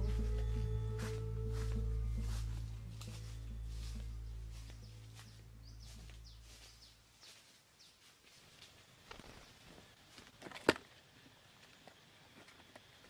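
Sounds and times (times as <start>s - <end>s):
background music: 0.0s - 6.9s
small birds chirping faintly: 0.0s - 13.0s.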